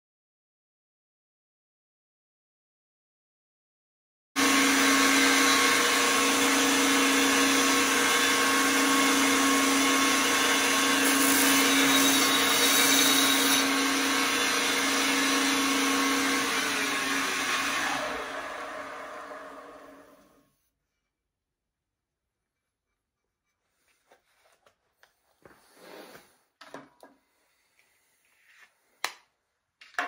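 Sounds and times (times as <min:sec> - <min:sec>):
wood chipper whining: 0:04.4 - 0:12.5, 0:13.2 - 0:20.4.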